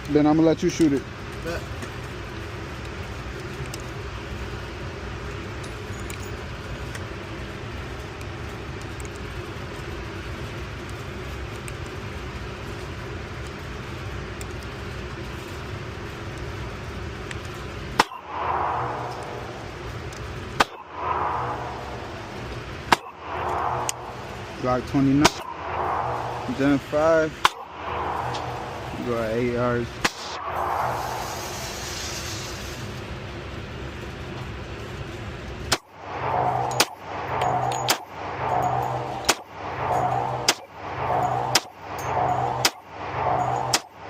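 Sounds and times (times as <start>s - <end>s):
low background rumble: 1.0s - 44.0s
gunshots: 18.0s - 19.9s, 20.5s - 29.0s, 30.0s - 31.4s, 35.7s - 43.9s.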